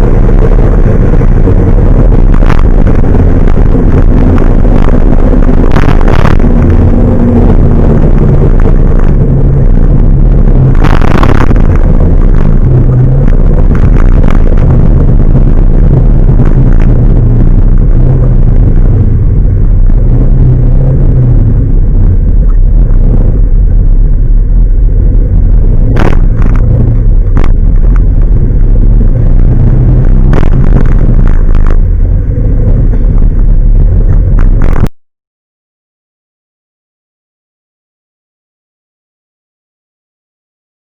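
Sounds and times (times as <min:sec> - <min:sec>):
truck engine and road rumble: 0:00.0 - 0:35.0.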